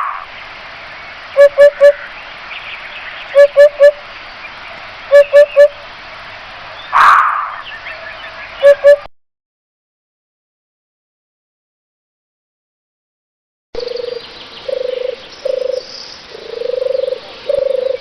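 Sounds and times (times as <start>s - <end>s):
bird hooting: 0.0s - 0.3s, 1.3s - 2.2s, 3.3s - 4.0s, 5.1s - 5.8s, 6.8s - 9.1s, 13.8s - 18.0s
harsh bird call: 0.0s - 0.4s, 1.3s - 4.1s, 5.1s - 5.8s, 6.7s - 9.1s.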